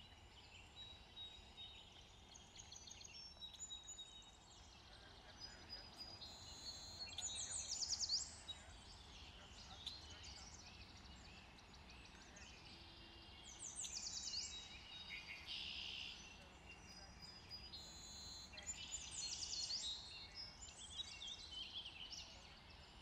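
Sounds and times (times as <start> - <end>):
faint low background noise: 0.0 - 23.0
birds chirping and singing: 0.1 - 23.0.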